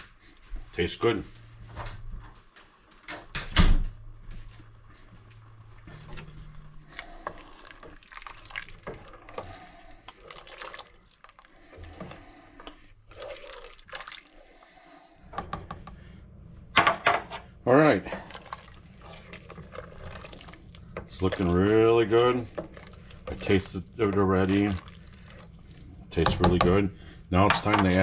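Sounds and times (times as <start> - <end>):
soup sloshing and dripping: 4.5 - 15.2, 18.1 - 26.2
spoon knocking pot: 15.3 - 16.0, 26.2 - 26.8.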